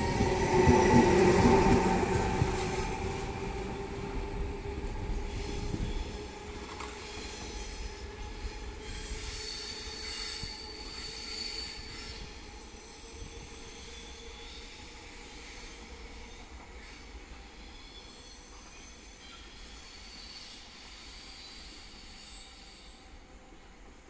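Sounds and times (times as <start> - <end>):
train rolling over tracks: 0.0 - 14.6
train wheels squealing: 0.0 - 24.0.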